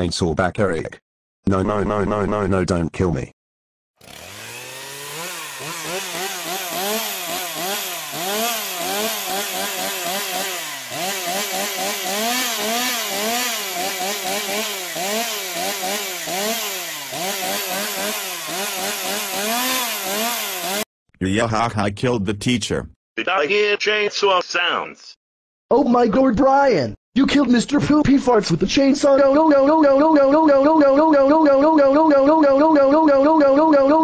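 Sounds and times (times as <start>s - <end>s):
chainsaw revving: 4.0s - 20.9s.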